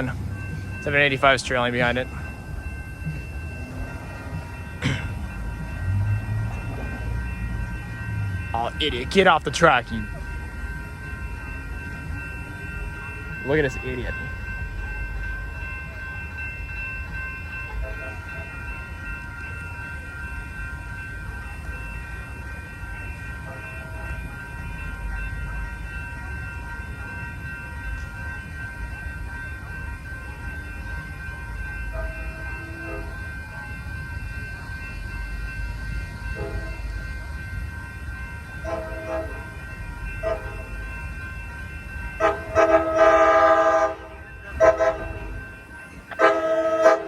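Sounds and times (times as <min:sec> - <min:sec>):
passenger train rumbling past: 0:00.0 - 0:47.0
train air horn blasts: 0:42.2 - 0:45.1, 0:46.2 - 0:47.0.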